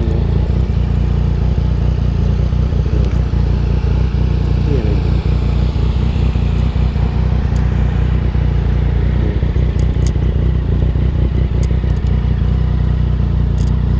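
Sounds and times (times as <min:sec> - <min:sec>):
motorcycle engine running: 0:00.0 - 0:13.9
faint ticks: 0:13.5 - 0:13.8.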